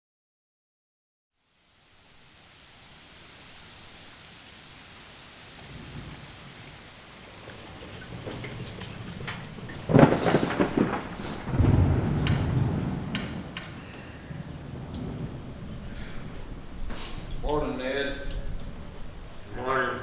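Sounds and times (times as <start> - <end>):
heavy rain: 1.4 - 20.0
thunder rumbling: 5.6 - 20.0
loud thunderclap: 7.3 - 20.0.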